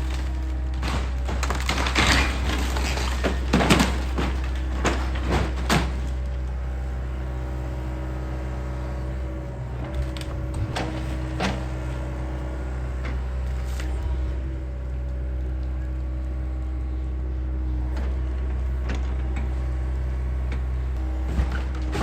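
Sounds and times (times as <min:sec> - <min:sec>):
knocks and cracks: 0:00.0 - 0:06.2
excavator diesel engine running: 0:00.0 - 0:22.0.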